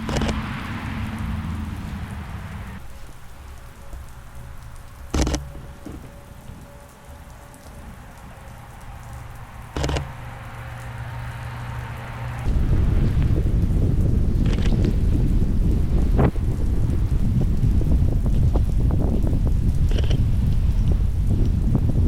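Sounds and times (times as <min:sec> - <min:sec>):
camera shutter clicks: 0:00.0 - 0:00.4, 0:05.1 - 0:06.0, 0:09.8 - 0:10.2
steady rain falling: 0:00.0 - 0:22.0.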